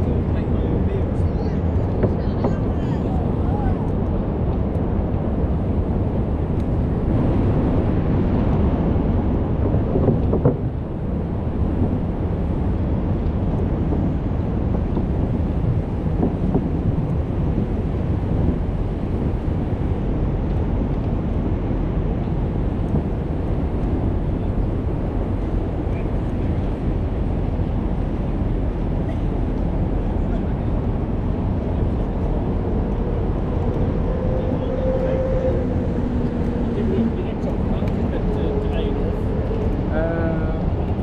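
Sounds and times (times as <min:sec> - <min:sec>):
street noise: 0:00.0 - 0:41.0
wind noise: 0:00.0 - 0:41.0.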